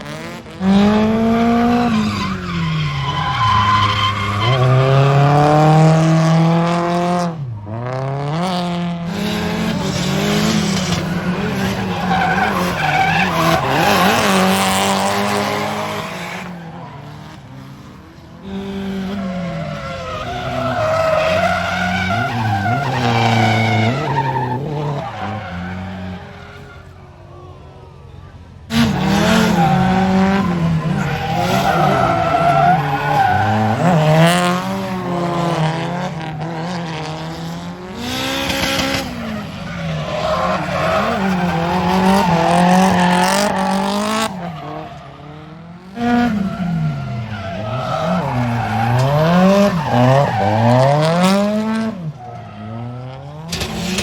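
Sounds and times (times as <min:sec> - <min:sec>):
tyres squealing and skidding: 0:00.0 - 0:06.8, 0:09.0 - 0:54.0
car engines revving: 0:00.0 - 0:54.0.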